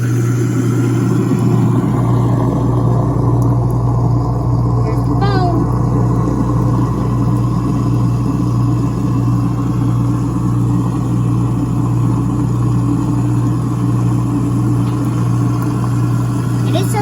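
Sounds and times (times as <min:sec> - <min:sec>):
garbage disposal motor humming: 0:00.0 - 0:17.0
water trickling: 0:00.0 - 0:17.0.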